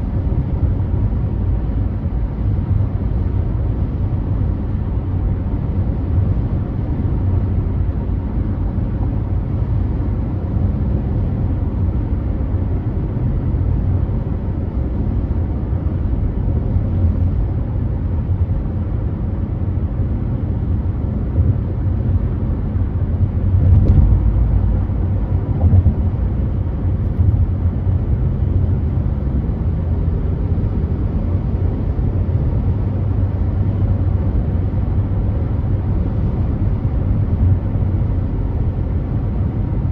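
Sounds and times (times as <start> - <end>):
car tyres and engine rumble: 0.0 - 39.9
car bumps: 23.5 - 24.6.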